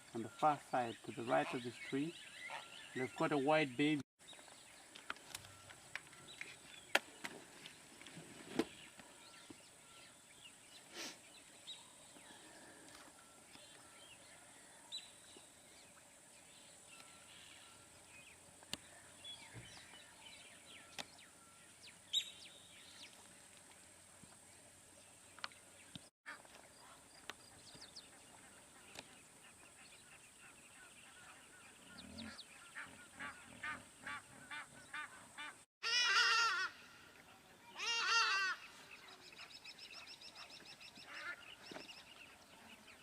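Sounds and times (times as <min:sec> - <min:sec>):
birds chirping: 0:00.0 - 0:35.7, 0:37.2 - 0:43.0.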